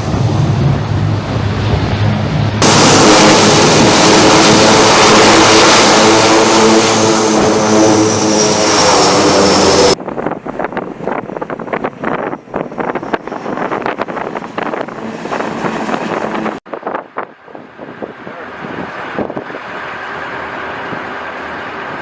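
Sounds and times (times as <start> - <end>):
wind buffeting on microphone: 0.0 - 20.0
aircraft engine noise: 0.0 - 22.0.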